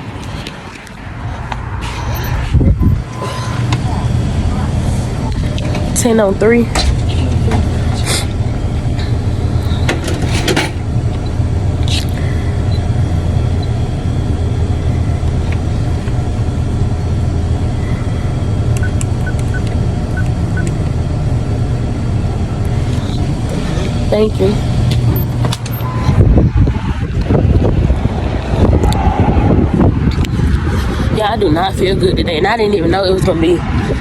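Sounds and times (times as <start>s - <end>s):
vehicle engine rumbling: 0.0s - 34.0s
sharp clicks: 18.7s - 21.0s.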